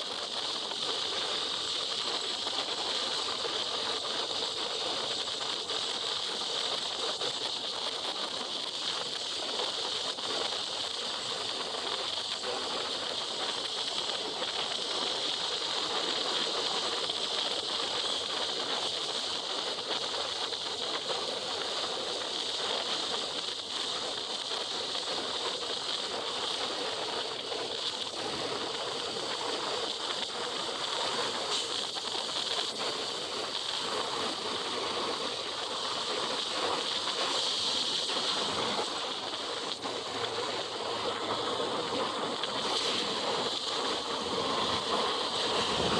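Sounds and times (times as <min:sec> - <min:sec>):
wet road hiss: 0:00.0 - 0:45.9
rushing wind on microphone: 0:40.0 - 0:45.9.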